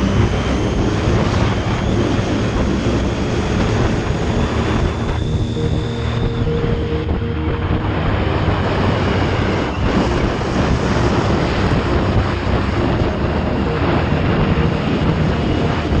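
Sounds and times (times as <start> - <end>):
motorcycle engine running: 0.0 - 16.0
wind rushing on microphone: 0.0 - 16.0.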